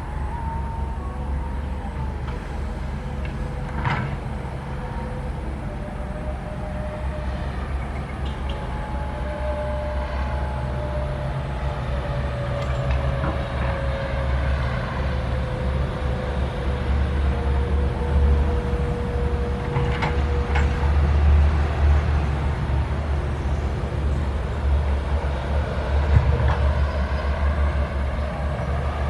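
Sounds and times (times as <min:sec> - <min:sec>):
faint hydraulic whine: 0:00.0 - 0:14.3
excavator diesel engine droning: 0:00.0 - 0:29.0.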